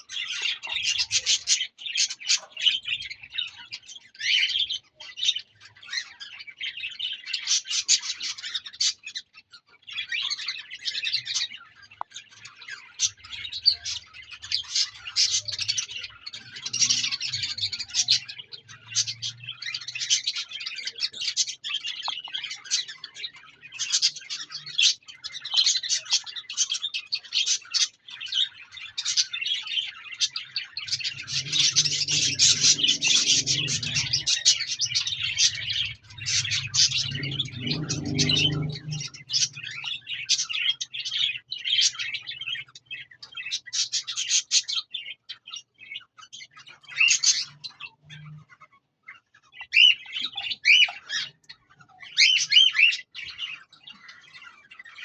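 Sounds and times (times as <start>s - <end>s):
parrots chattering and chirping: 0.0s - 55.0s.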